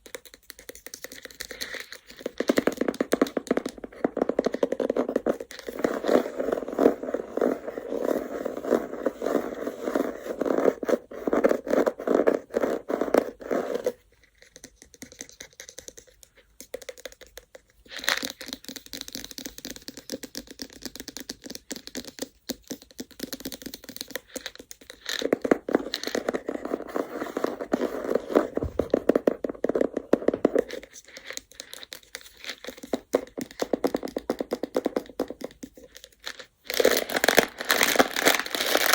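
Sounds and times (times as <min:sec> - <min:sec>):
scratchy stone handling: 0:00.6 - 0:14.0, 0:24.4 - 0:38.9.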